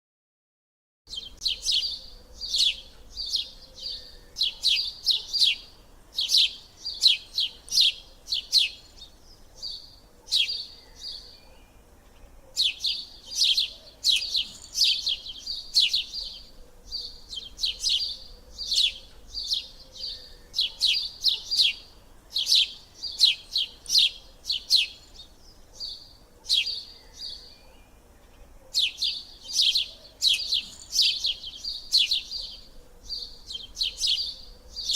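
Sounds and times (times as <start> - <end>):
small birds chirping: 1.1 - 34.9.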